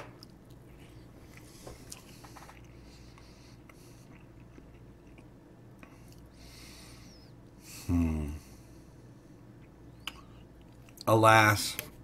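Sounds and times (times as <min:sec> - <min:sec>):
faint closed-mouth chewing: 0:00.2 - 0:06.4.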